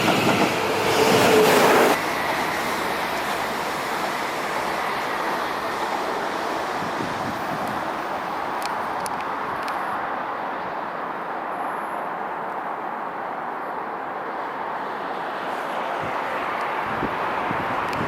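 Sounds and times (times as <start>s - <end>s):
train wheels rushing on track: 0.0s - 10.3s.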